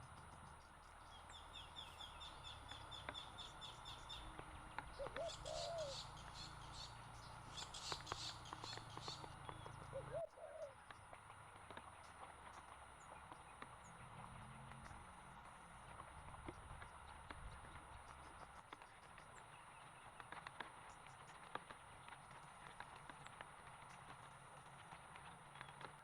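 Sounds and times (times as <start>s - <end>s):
high bird chirps: 4.9s - 9.2s
low two-note cooing call: 5.0s - 6.1s.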